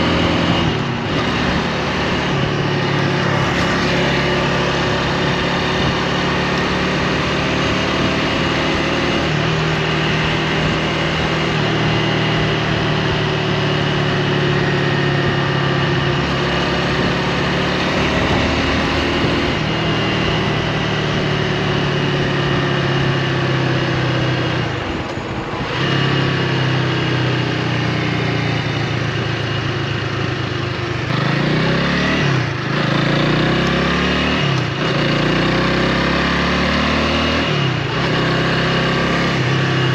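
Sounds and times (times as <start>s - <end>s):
motorcycle engine running: 0.0s - 39.9s
wind on microphone: 16.6s - 20.7s.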